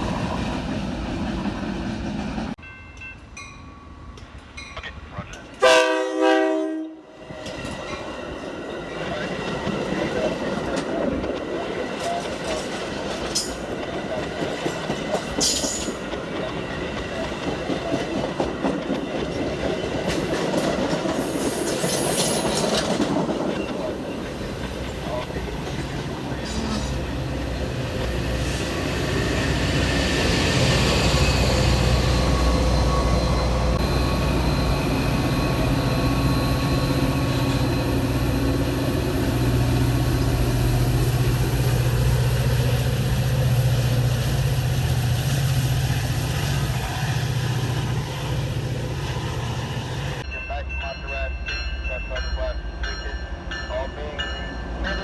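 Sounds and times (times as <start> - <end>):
diesel locomotive engine drone: 4.1 - 55.0
train wheel clatter: 8.9 - 27.1.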